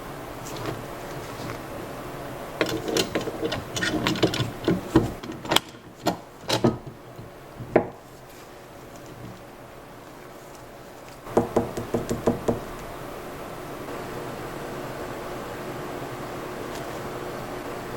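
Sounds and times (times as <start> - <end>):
tools and parts knocking and scraping: 2.6 - 8.4, 9.0 - 9.4.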